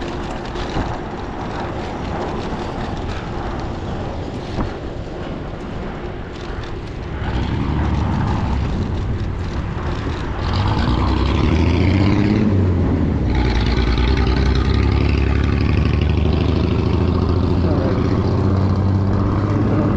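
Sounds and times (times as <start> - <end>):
motor vehicle engine running: 5.6 - 19.9.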